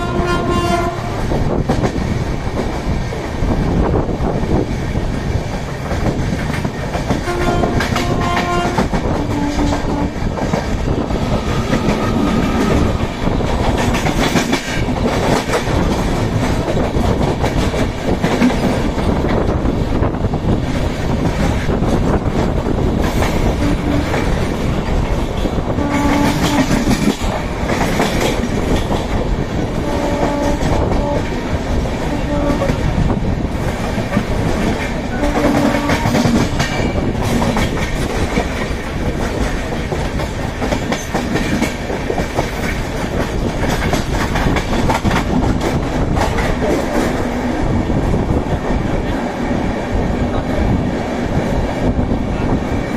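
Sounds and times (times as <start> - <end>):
train horn: 0.0 - 1.2, 7.2 - 10.3, 11.5 - 13.0, 23.5 - 24.3, 25.7 - 27.0, 29.7 - 32.9, 35.1 - 36.5
passing train: 0.0 - 52.9
train wheels clattering on rails: 0.0 - 52.9.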